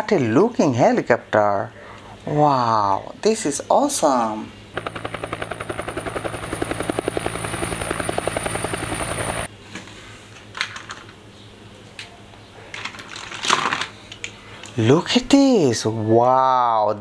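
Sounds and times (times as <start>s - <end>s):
toy helicopter rotor chopping: 3.9s - 9.5s.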